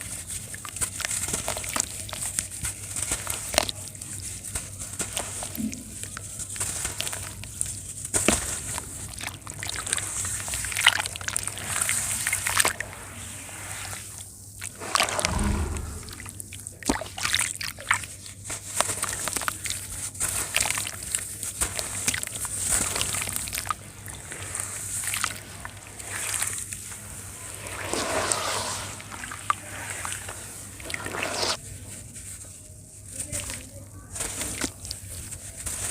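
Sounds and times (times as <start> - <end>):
water sloshing and splashing: 14.6 - 18.0, 21.7 - 31.6
sand crumbling in water: 18.9 - 31.6.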